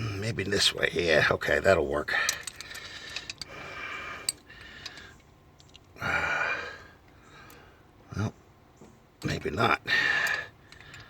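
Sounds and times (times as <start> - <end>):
man breathing out heavily: 2.1 - 5.2, 6.0 - 7.9, 9.8 - 11.0.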